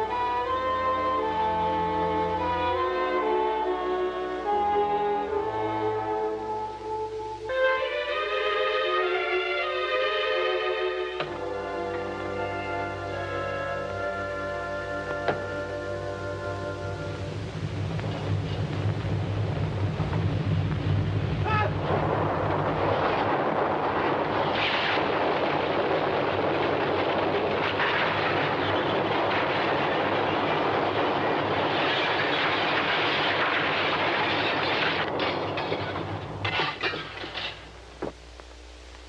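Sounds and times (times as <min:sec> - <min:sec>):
background music: 0:00.0 - 0:17.8
low rumbling: 0:11.4 - 0:39.0.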